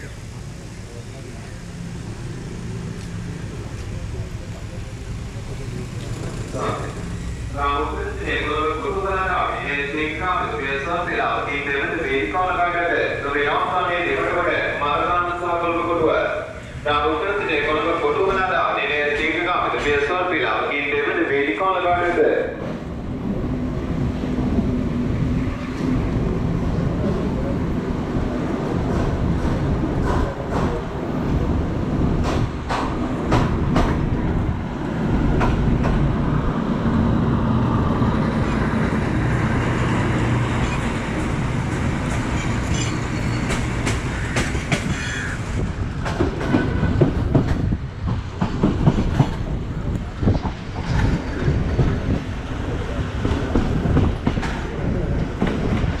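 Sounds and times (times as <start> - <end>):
train wheels rumbling on rails: 0.0 - 56.0
wheels clacking over rail joints: 38.4 - 52.3.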